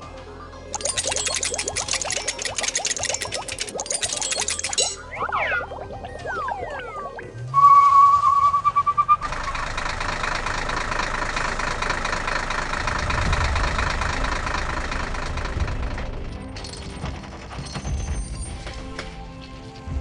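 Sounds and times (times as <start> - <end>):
warbling whistle-like tone: 0.8 - 9.2
vehicle engine running: 9.2 - 17.7.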